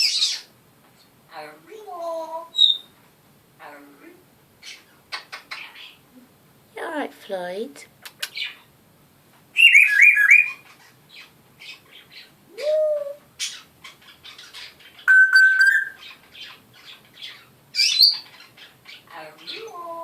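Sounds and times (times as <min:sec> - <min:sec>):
parrot squawk: 0:00.0 - 0:00.5, 0:09.6 - 0:12.3, 0:13.4 - 0:19.6
parrot whistling: 0:09.6 - 0:10.6, 0:14.3 - 0:16.1.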